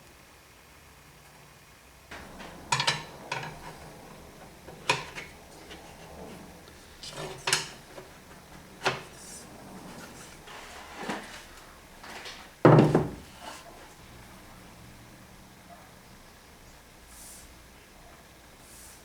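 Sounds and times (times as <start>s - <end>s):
hard parts clacking on workbench: 2.1s - 13.6s.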